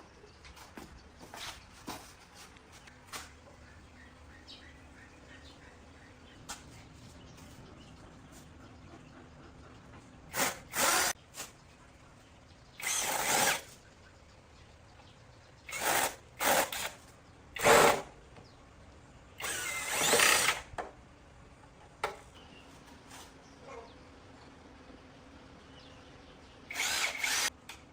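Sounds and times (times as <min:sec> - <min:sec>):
power drill bursts: 0:10.3 - 0:11.2, 0:12.8 - 0:13.7, 0:15.7 - 0:16.9, 0:17.6 - 0:18.1, 0:19.4 - 0:20.7, 0:26.7 - 0:27.5.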